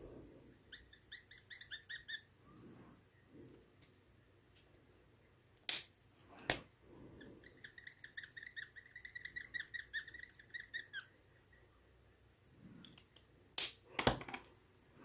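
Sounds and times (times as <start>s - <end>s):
small bird chirping: 0.6s - 2.3s, 7.2s - 11.2s.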